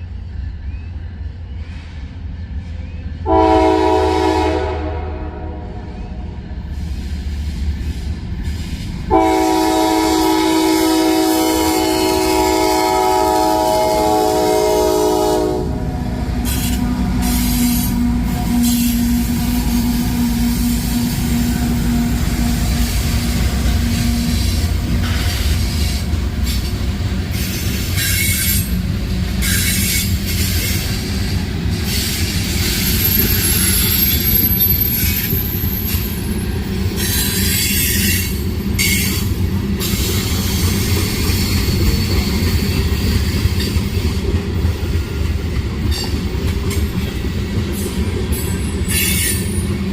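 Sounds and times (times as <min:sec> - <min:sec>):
train rumbling by: 0:00.0 - 0:49.9
train horn: 0:03.2 - 0:06.4, 0:09.1 - 0:25.2
wheels clacking on rails: 0:06.6 - 0:49.9
high wheel squeal: 0:27.3 - 0:28.8, 0:29.4 - 0:36.3, 0:37.0 - 0:39.2.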